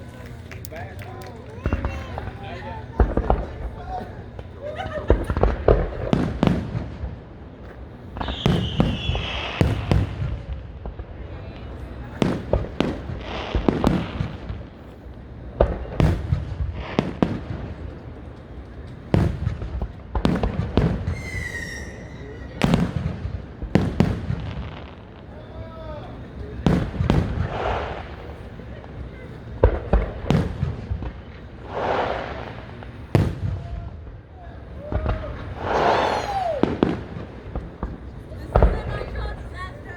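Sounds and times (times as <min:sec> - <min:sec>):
fireworks booming and crackling: 0:00.0 - 0:39.9
whistling firework shells: 0:08.0 - 0:10.4, 0:20.2 - 0:23.2, 0:23.8 - 0:39.9.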